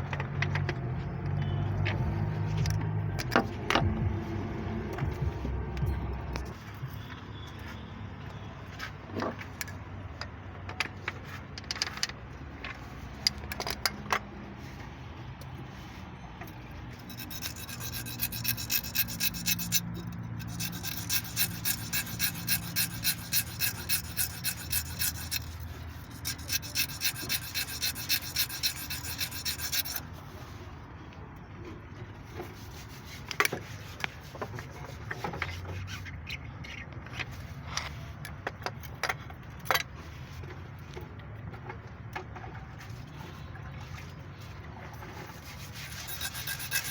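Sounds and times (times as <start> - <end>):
tools clicking and knocking: 9.2 - 14.3, 17.1 - 30.0
file rasping strokes: 16.9 - 30.5, 45.1 - 46.9.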